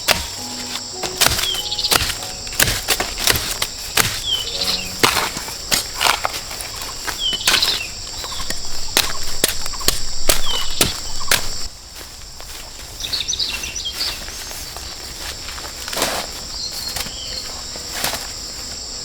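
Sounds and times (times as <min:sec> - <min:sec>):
sharp knocks: 0:00.0 - 0:05.9
high insect buzz: 0:00.0 - 0:11.7.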